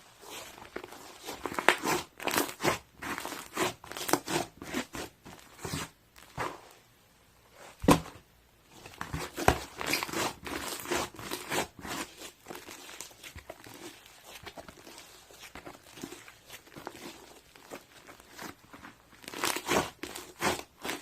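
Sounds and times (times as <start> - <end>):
slime crackling and popping: 9.2 - 21.0.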